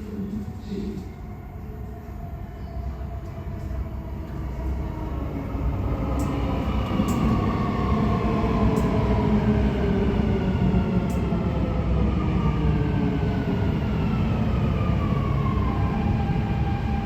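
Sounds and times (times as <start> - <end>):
electric train arriving with whine: 0.0 - 17.0.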